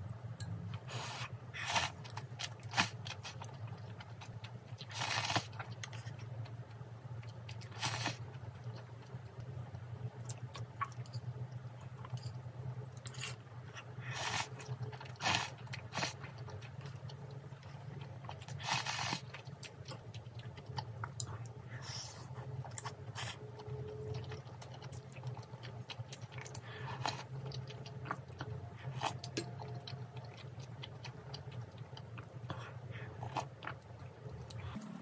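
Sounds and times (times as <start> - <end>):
steady low hum: 0.0 - 35.0
crunchy food being chewed: 10.2 - 35.0.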